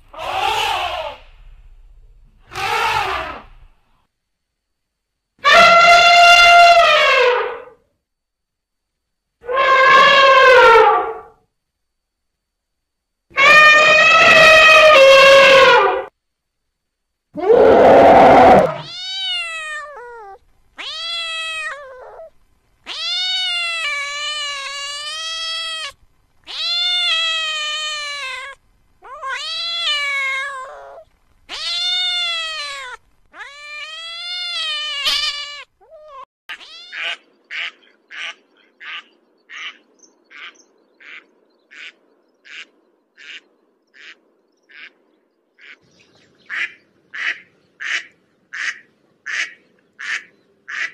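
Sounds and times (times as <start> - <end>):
elephant trumpeting: 17.4 - 18.9
cat meowing: 17.4 - 37.2
duck quacks: 36.9 - 43.4, 44.0 - 45.0, 45.6 - 45.8, 46.5 - 50.9.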